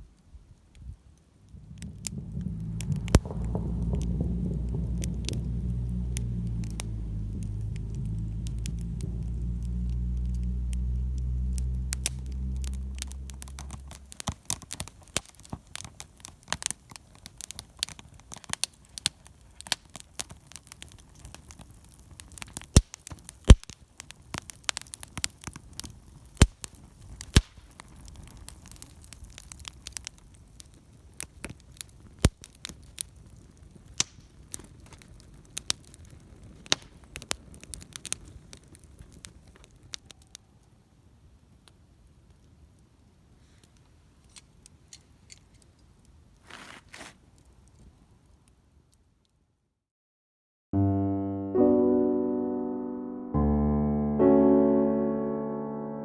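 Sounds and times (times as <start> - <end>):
wood fire crackling and popping: 0.0 - 49.4
low steady hum: 1.4 - 15.1.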